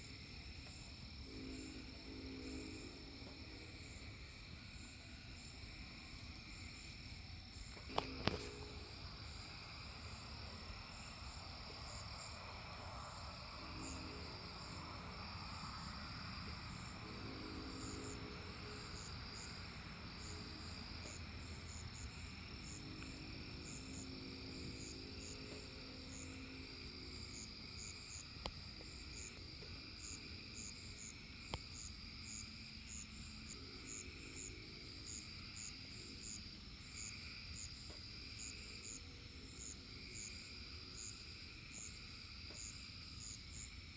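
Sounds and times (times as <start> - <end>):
distant locomotive horn chord: 0.0 - 31.3
crickets and insects calling: 0.0 - 43.9.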